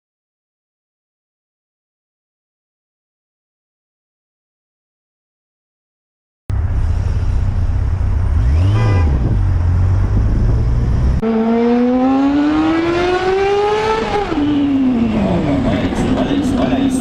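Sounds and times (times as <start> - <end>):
motorcycle engine rumbling and accelerating: 6.5 - 17.0
wind on microphone: 8.4 - 11.2.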